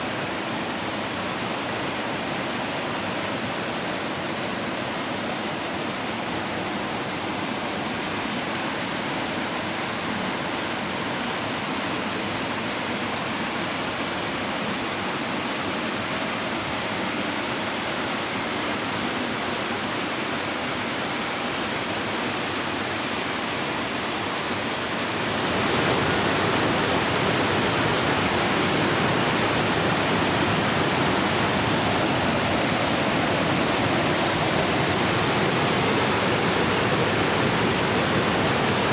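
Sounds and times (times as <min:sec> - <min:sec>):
river water rushing: 0:19.5 - 0:38.9.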